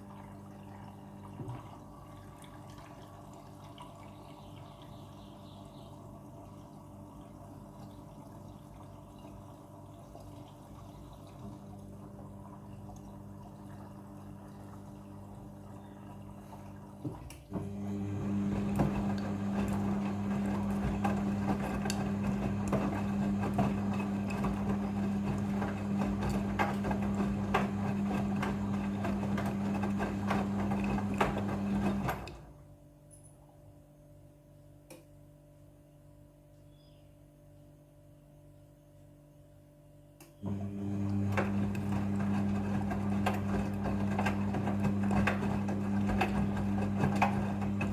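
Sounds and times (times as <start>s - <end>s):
water sloshing in drum: 0.0s - 5.1s
washing machine motor hum: 0.0s - 32.9s, 40.4s - 47.9s.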